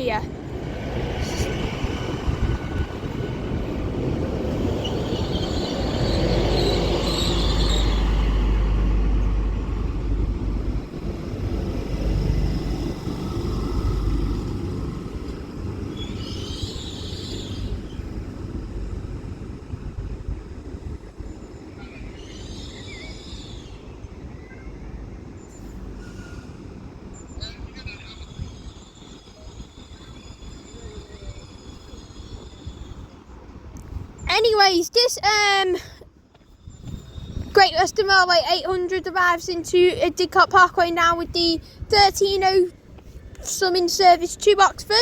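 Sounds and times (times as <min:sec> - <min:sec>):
train low rumble: 0:00.0 - 0:45.0
train brake squeals: 0:04.8 - 0:08.2, 0:16.0 - 0:17.7, 0:21.8 - 0:24.8, 0:25.4 - 0:33.3, 0:36.5 - 0:37.5.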